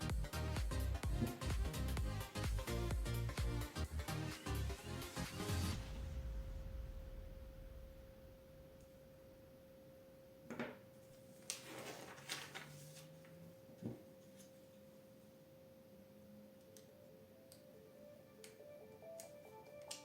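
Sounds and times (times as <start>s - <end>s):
background music: 0.0s - 8.4s, 16.8s - 20.0s.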